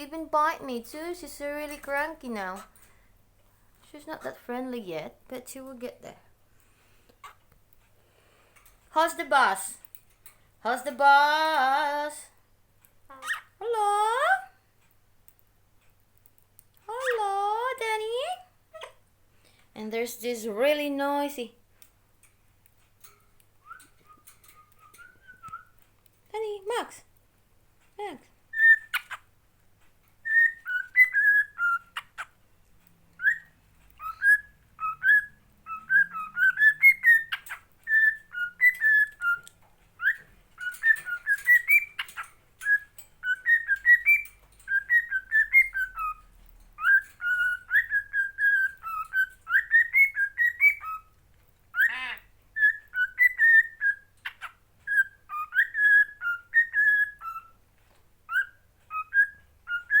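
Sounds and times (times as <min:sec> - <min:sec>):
parrot whistling: 0:23.6 - 0:25.8, 0:28.5 - 0:29.2, 0:30.2 - 0:32.3, 0:33.2 - 0:39.4, 0:40.0 - 0:46.2, 0:46.8 - 0:51.1, 0:51.7 - 0:57.6, 0:58.3 - 1:00.0.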